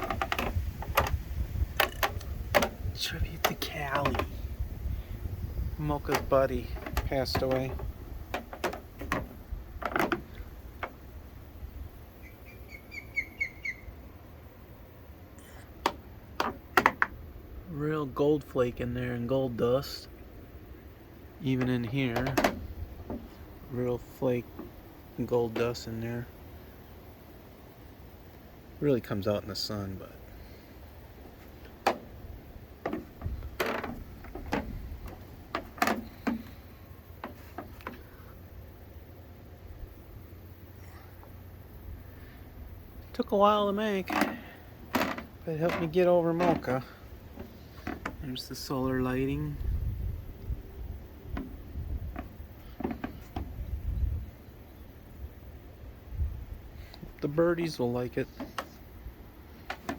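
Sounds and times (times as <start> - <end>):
light knocks and clicks: 0.0 - 4.4, 6.0 - 11.0
small bird chirping: 12.2 - 14.0.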